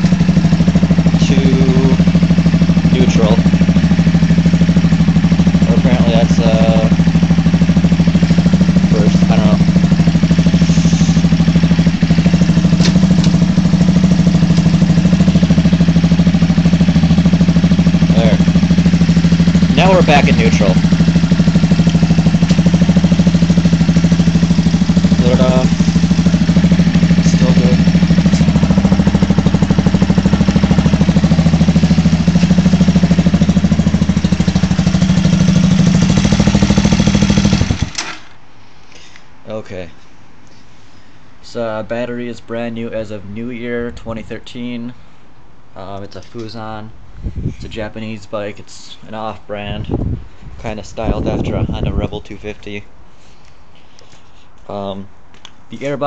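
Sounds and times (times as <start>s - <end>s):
motorcycle engine idling: 0.0s - 38.0s.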